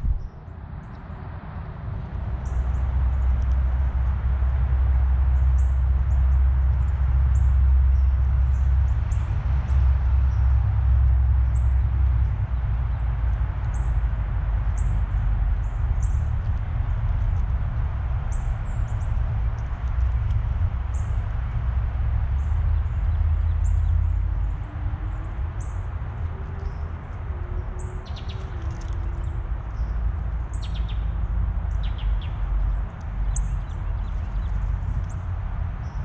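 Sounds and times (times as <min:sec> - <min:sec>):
steady low rumble: 0:00.0 - 0:36.0
songbirds chirping: 0:02.2 - 0:36.0.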